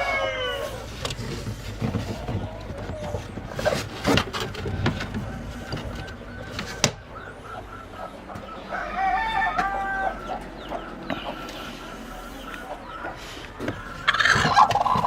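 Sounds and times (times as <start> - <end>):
rooster crowing: 0.0 - 0.9, 7.2 - 14.7
chickens clucking: 0.0 - 15.0.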